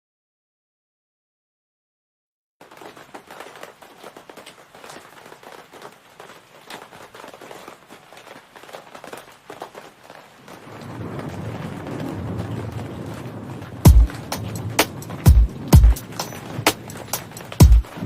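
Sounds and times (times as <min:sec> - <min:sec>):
rain hiss: 0:02.6 - 0:18.0
deep bass music notes: 0:13.9 - 0:16.2.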